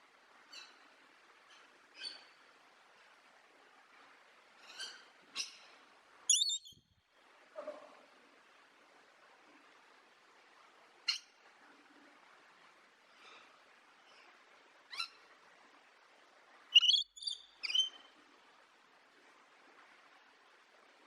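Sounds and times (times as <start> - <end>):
faint steady hiss: 0.0 - 21.0
parrot calls: 6.3 - 6.7, 16.8 - 18.0.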